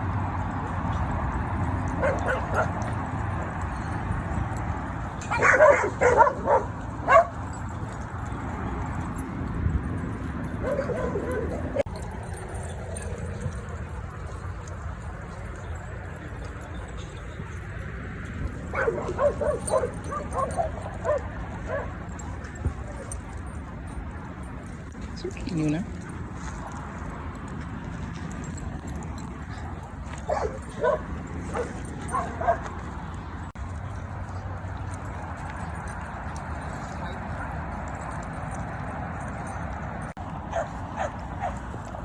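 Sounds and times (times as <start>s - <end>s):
dogs barking: 1.6s - 9.1s, 10.4s - 15.7s, 16.7s - 23.7s, 28.5s - 36.1s, 40.4s - 41.9s.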